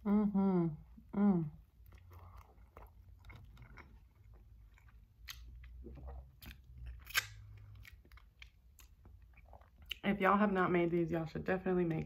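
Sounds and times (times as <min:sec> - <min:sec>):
wet chewing: 0:01.6 - 0:10.2.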